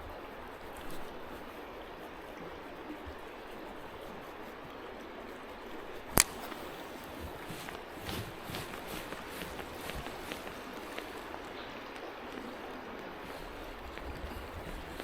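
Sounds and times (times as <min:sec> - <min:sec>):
faint ticks: 0:00.0 - 0:15.0
stream rushing: 0:00.1 - 0:15.0
sharp click: 0:06.1 - 0:06.7.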